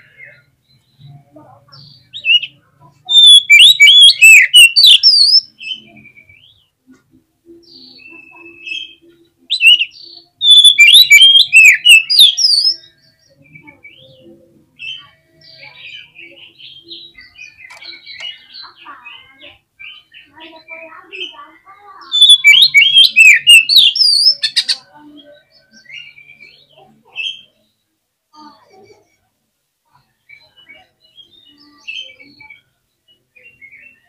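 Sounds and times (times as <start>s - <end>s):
bird singing whistled notes: 1.9s - 6.6s, 7.6s - 14.0s, 22.0s - 26.6s.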